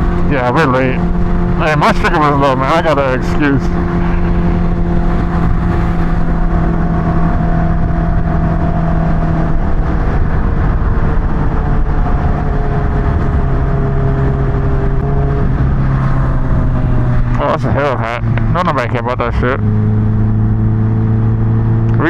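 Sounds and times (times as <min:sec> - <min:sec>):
wind rush: 0:00.0 - 0:18.7
motorcycle engine cruising: 0:00.0 - 0:22.0.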